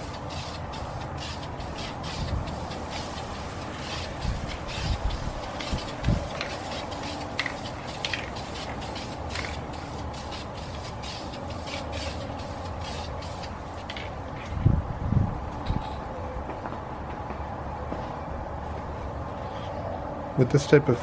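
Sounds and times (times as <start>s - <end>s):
spray can hissing in bursts: 0.0s - 14.1s.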